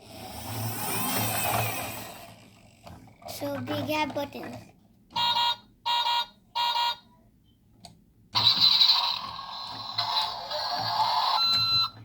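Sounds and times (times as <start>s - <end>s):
toy electronic sound effect: 8.4s - 11.9s.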